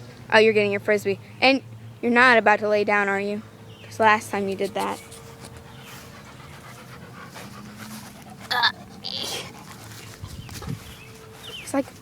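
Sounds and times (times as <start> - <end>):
dog panting: 4.2 - 12.0.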